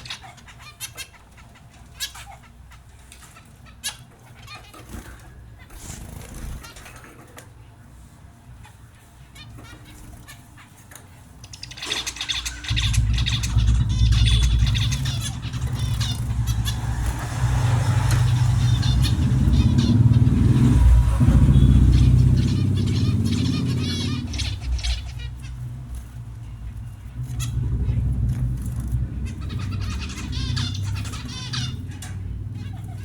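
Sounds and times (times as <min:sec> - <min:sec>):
small birds chirping: 0:00.0 - 0:33.0
loud low rumble: 0:12.6 - 0:25.4, 0:27.0 - 0:31.5.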